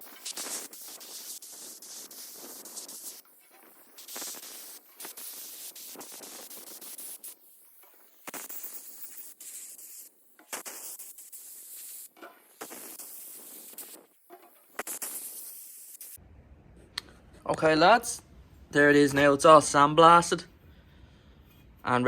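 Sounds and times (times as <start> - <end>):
sandblaster hissing: 0.0 - 16.2.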